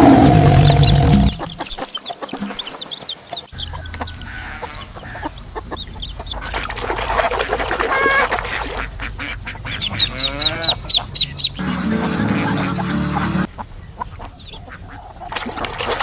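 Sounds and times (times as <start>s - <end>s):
ducks and geese honking: 3.5s - 16.0s.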